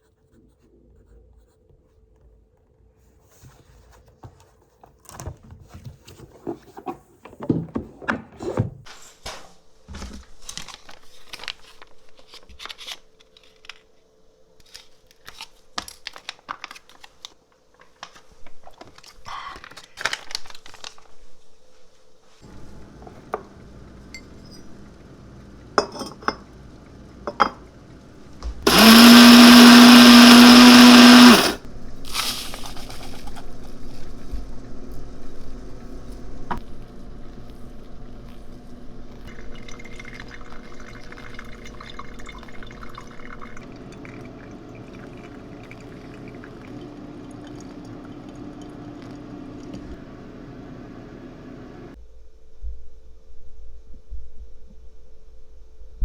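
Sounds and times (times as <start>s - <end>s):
small electric motor whirring: 28.6s - 31.7s.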